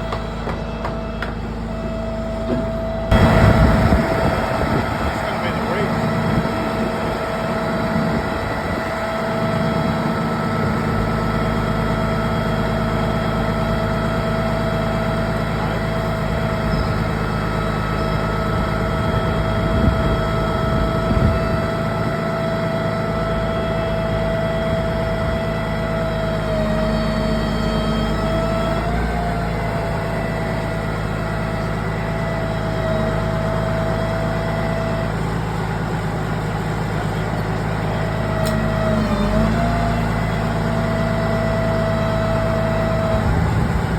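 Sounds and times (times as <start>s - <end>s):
steady whine: 0.0s - 26.2s
vehicle engine low hum: 0.0s - 43.9s.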